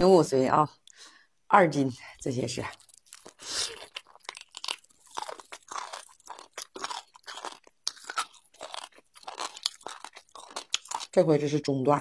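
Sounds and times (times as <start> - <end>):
wet chewing crunches: 2.6 - 11.2.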